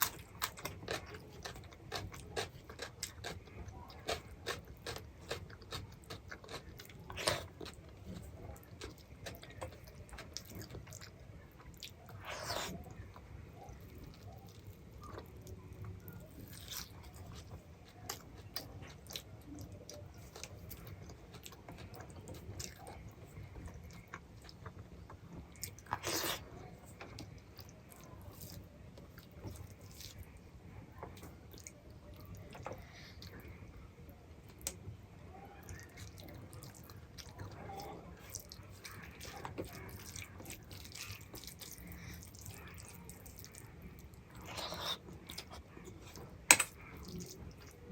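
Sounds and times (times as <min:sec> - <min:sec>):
food crunches: 0:00.0 - 0:11.1
person chewing food: 0:00.0 - 0:30.4, 0:35.7 - 0:47.9.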